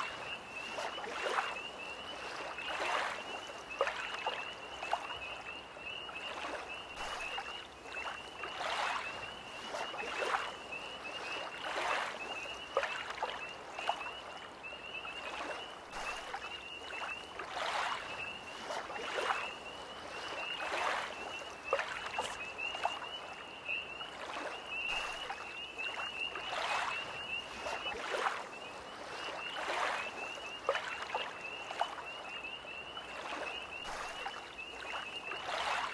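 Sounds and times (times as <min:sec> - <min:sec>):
small waves lapping: 0:00.0 - 0:35.9
tree frog trilling: 0:22.1 - 0:22.5.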